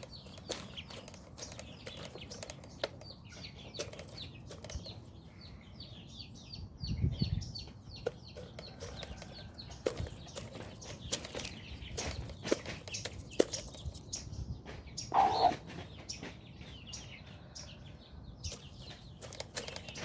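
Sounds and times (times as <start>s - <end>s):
chickens chirping: 0.0s - 20.0s
chickens clucking: 7.6s - 20.0s.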